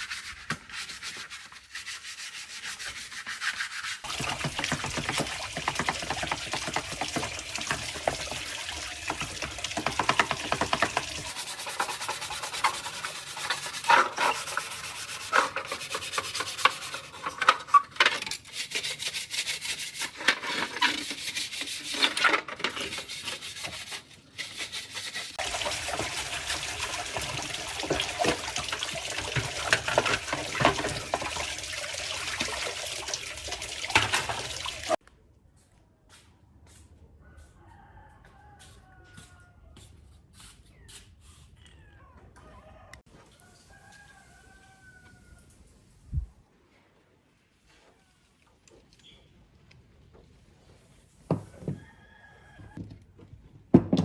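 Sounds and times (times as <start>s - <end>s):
scratchy hand sanding: 0.0s - 4.1s, 11.3s - 17.8s, 18.4s - 25.4s.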